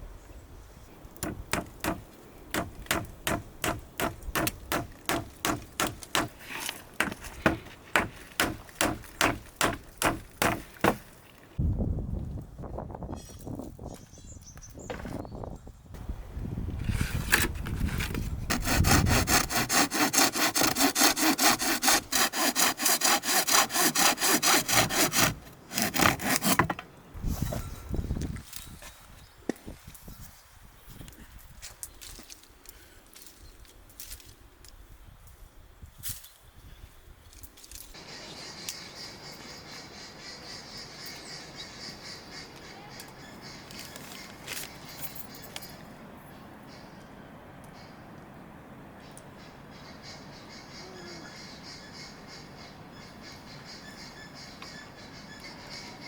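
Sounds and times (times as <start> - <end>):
rapid rasping strokes: 18.5 - 26.7.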